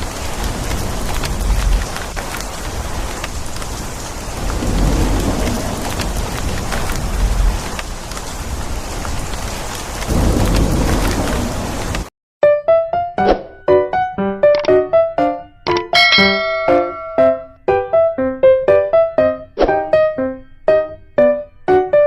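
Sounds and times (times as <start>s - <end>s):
heavy rain pattering: 0.0s - 12.1s
thunder rumbling: 0.0s - 12.1s.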